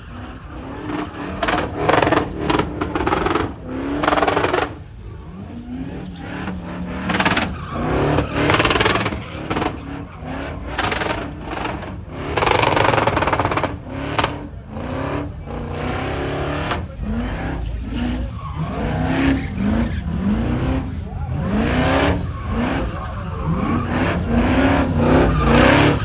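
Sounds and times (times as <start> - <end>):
vehicle engines revving: 0.0 - 26.0
loud bursts of noise: 7.0 - 16.9.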